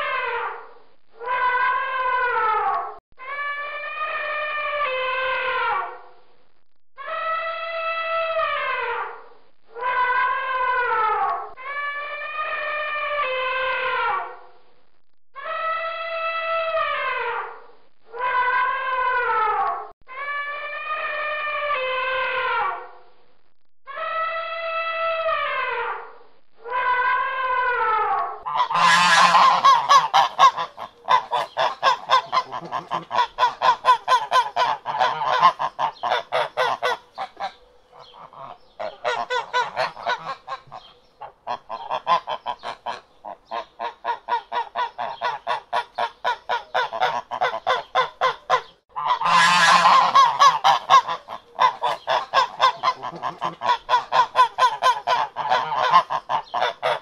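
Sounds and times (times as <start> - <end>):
ducks quacking: 28.5 - 57.0.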